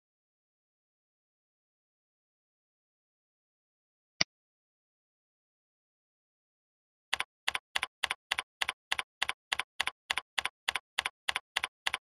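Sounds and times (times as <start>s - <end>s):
computer keyboard typing: 7.1s - 12.0s.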